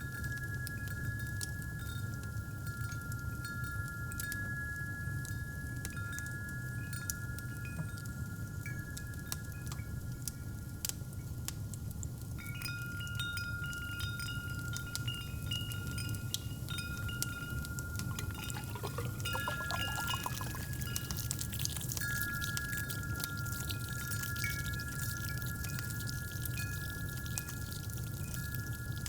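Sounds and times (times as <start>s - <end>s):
wind chimes ringing: 12.4s - 21.4s
liquid pouring: 17.0s - 29.0s
fireplace crackling: 18.0s - 22.1s.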